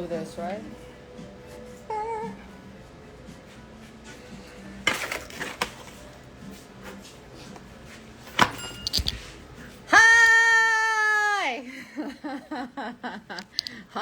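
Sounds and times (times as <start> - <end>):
hard objects clattering: 8.4 - 9.4, 13.4 - 13.7.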